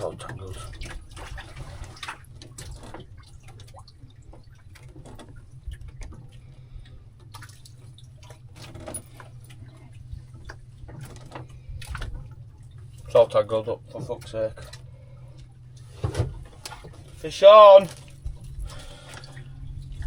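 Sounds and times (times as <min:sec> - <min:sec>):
water dripping and sloshing: 0:00.0 - 0:20.0
low rumble: 0:09.0 - 0:20.0.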